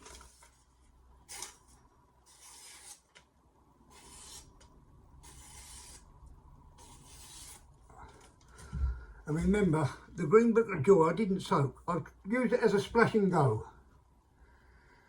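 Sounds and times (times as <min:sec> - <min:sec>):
knife blade rasping strokes: 0:02.3 - 0:03.0, 0:03.9 - 0:04.6, 0:05.2 - 0:06.1.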